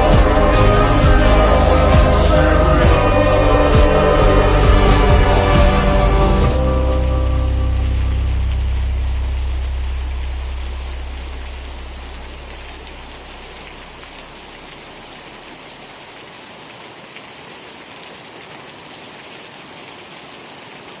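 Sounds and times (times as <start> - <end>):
deep low musical note: 0.0 - 15.1
rain pattering: 0.0 - 21.0.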